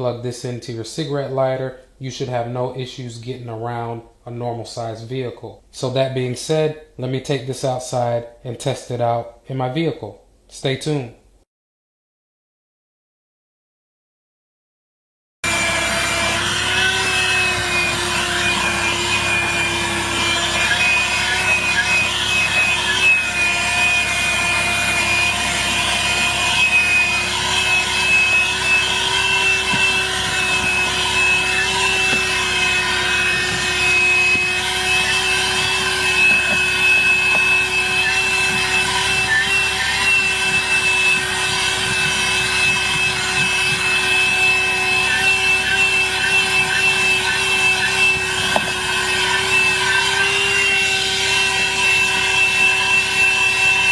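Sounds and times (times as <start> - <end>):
handheld vacuum whining: 15.4 - 53.9
vacuum nozzle rubbing: 15.5 - 53.9.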